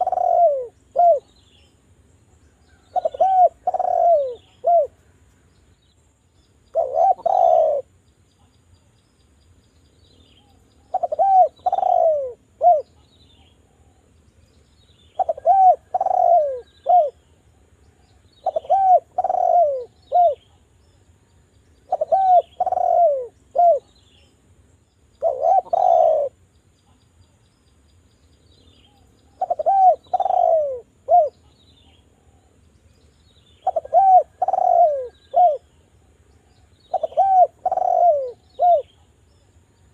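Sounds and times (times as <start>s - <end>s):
dove cooing: 0.0s - 1.4s, 2.7s - 5.0s, 6.7s - 7.9s, 10.8s - 13.0s, 15.2s - 17.2s, 18.1s - 20.6s, 21.9s - 24.0s, 25.2s - 26.4s, 29.3s - 31.5s, 33.6s - 35.7s, 36.5s - 39.0s.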